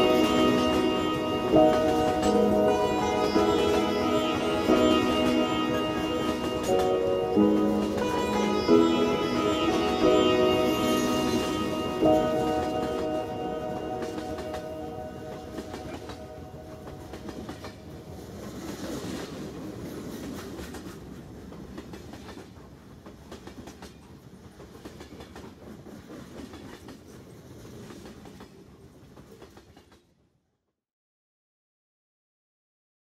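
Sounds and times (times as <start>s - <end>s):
train wheels clattering over rail joints: 18.5s - 30.0s.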